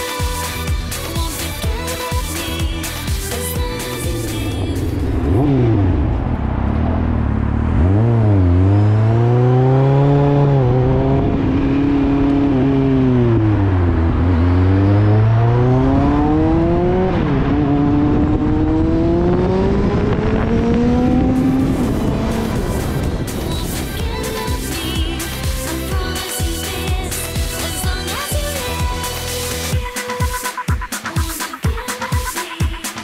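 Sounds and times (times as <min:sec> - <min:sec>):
motorcycle engine accelerating: 0:02.7 - 0:29.0
wind rushing over microphone: 0:10.3 - 0:24.6.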